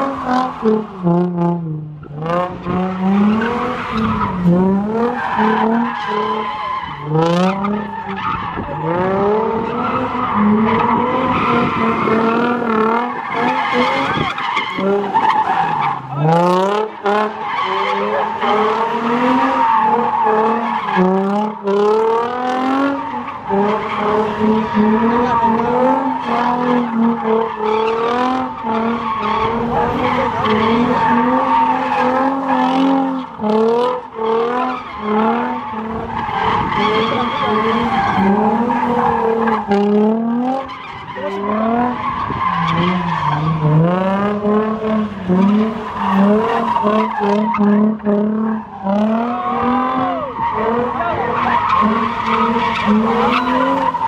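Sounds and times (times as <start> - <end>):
car engine revving: 0.0 - 54.0
tyres squealing: 3.2 - 33.4, 34.0 - 39.9, 45.1 - 54.0.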